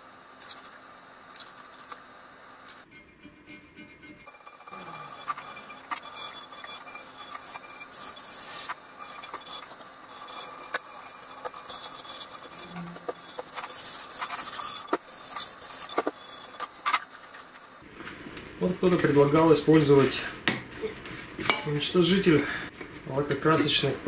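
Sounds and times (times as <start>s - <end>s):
scraping and rustling: 3.4s - 18.2s.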